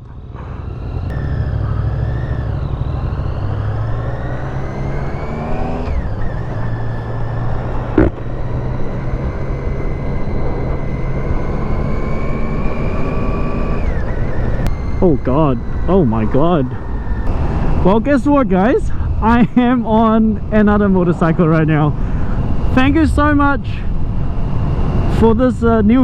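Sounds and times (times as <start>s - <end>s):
motorcycle engine accelerating: 0.0s - 26.0s
wind rumble on microphone: 5.9s - 26.0s.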